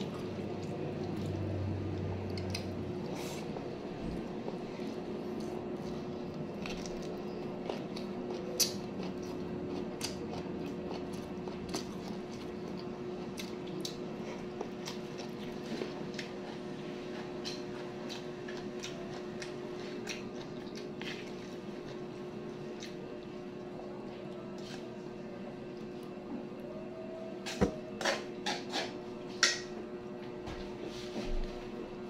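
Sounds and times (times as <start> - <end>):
faint steady hum: 0.0 - 32.0
person chewing food: 0.2 - 23.4.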